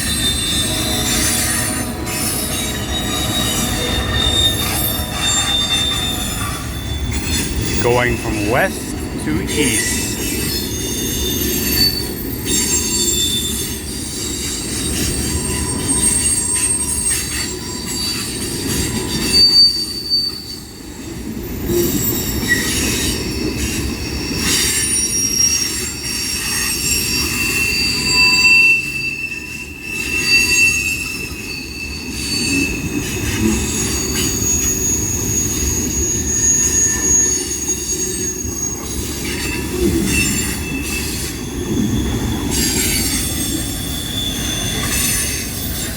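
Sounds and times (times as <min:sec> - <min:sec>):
wheels squealing on rails: 0:00.0 - 0:07.8, 0:09.9 - 0:45.9.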